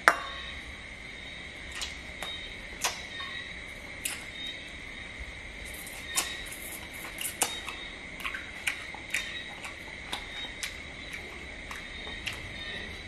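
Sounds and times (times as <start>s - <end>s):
steady high whine: 0.0s - 13.0s
chewing crunches and clicks: 1.7s - 3.0s, 4.0s - 4.3s, 5.7s - 13.0s.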